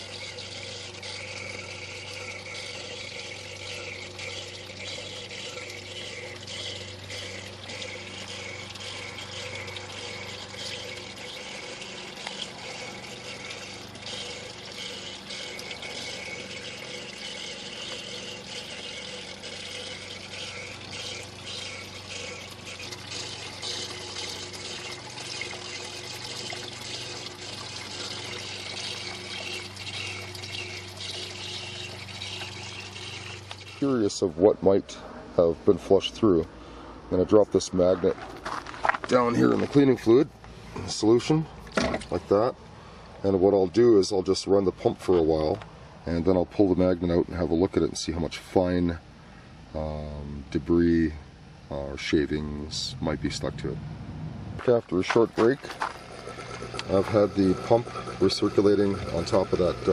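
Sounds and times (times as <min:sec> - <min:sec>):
liquid splashing and trickling: 0:00.0 - 0:34.6, 0:54.6 - 0:59.9
pump humming: 0:00.0 - 0:59.9.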